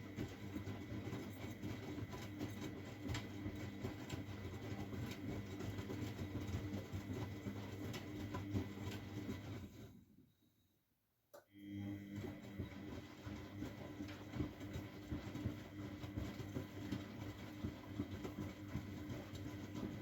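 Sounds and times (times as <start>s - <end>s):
washing machine running: 0.0s - 10.0s, 11.6s - 20.0s.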